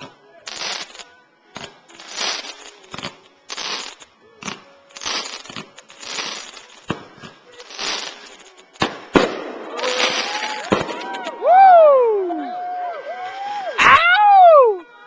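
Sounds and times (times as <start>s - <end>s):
fireworks bangs: 0.0s - 1.0s, 1.6s - 11.4s
fireworks crackling: 0.0s - 12.1s.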